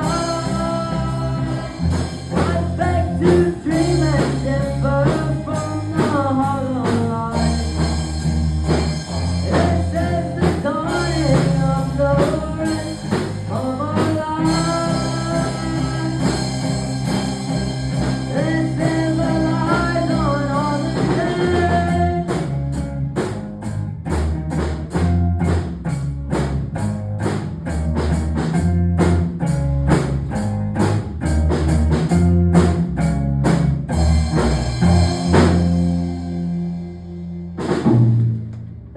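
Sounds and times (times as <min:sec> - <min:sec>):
person singing: 0:00.0 - 0:07.9, 0:09.3 - 0:17.2, 0:18.0 - 0:22.6
bass guitar: 0:00.0 - 0:38.9
drum kit: 0:00.0 - 0:38.9
electric guitar: 0:00.0 - 0:38.9.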